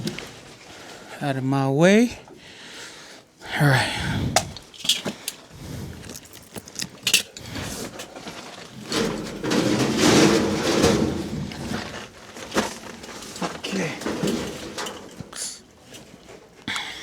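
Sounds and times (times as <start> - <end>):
sheet metal scraping and rattling: 6.8 - 16.4.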